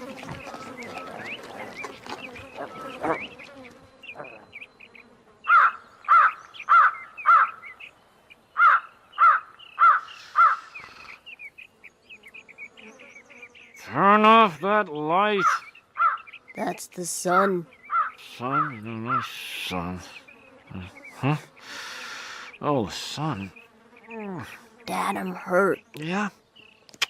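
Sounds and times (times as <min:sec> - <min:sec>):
insects buzzing and chirping: 0:00.0 - 0:27.0
small birds chirping faintly: 0:00.0 - 0:27.0
crow cawing: 0:05.5 - 0:07.8, 0:08.6 - 0:11.2, 0:15.4 - 0:16.4, 0:17.8 - 0:19.4.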